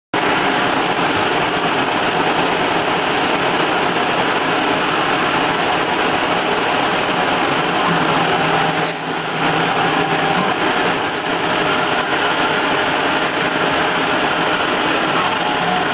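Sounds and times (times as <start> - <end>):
router spindle milling aluminium: 6.7 - 15.9.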